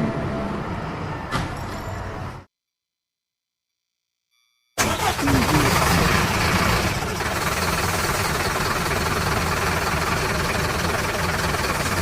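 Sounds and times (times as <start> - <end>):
engine idling: 4.8 - 12.0.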